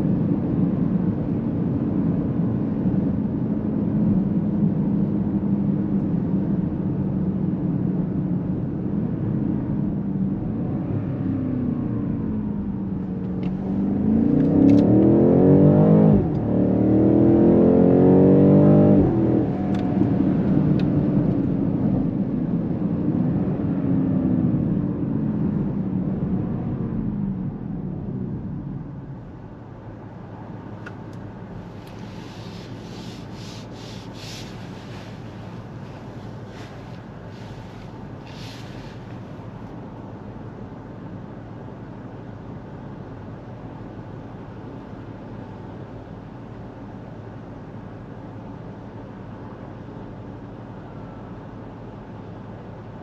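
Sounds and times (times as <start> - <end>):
car engine accelerating: 10.4 - 22.3, 30.6 - 39.8.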